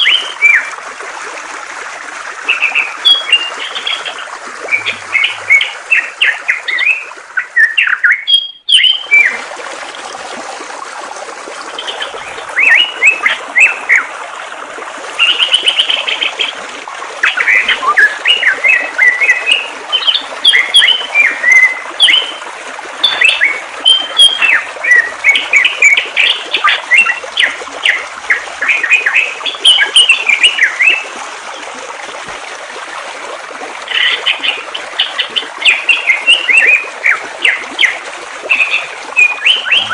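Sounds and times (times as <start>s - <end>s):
flowing water rushing: 0.0s - 39.9s
songbird chirping: 2.5s - 9.3s.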